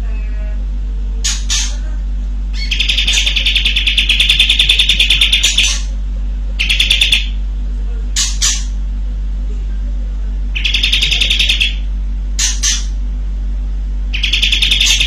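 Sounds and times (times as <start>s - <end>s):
bird rattling trill: 2.6s - 5.9s, 6.6s - 7.4s, 10.6s - 11.8s, 12.4s - 12.9s, 14.1s - 15.0s
bird single calls: 2.6s - 5.9s, 10.6s - 12.9s, 14.2s - 15.0s.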